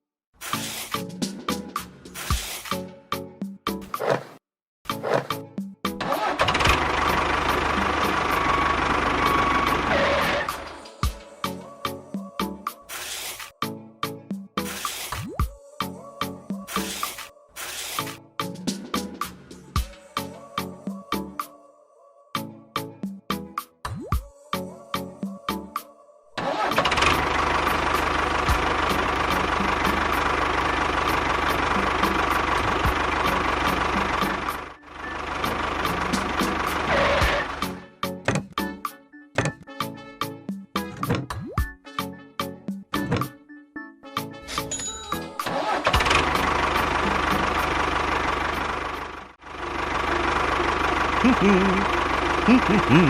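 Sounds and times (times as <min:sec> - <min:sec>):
music: 0:00.4 - 0:04.0, 0:04.9 - 0:48.7
engine running: 0:03.9 - 0:05.4, 0:06.0 - 0:10.8, 0:26.4 - 0:37.8, 0:45.5 - 0:53.0.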